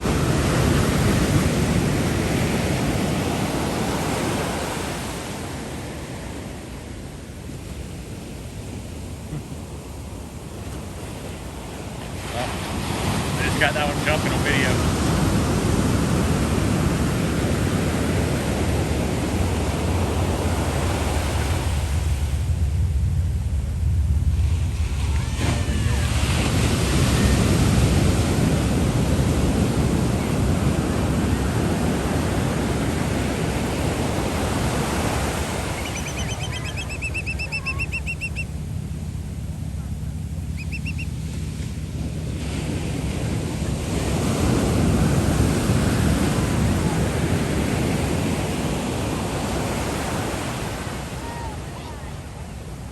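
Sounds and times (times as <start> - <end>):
ocean waves: 0.0 - 52.9
rushing sea water: 0.0 - 52.9
wind buffeting microphone: 15.0 - 50.8
steady low hum: 17.4 - 30.5, 32.6 - 45.8
quick high chirps: 35.8 - 38.5, 40.6 - 41.1.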